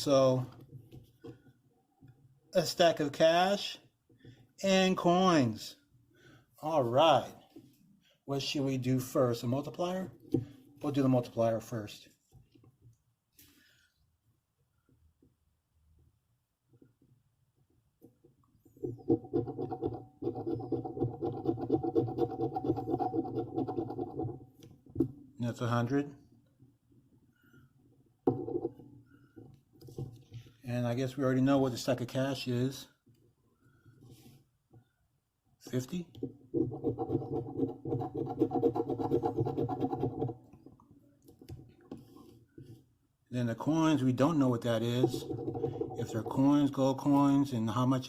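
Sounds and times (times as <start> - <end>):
lottery ticket scratching: 19.4 - 24.4, 36.6 - 40.4, 43.6 - 47.0.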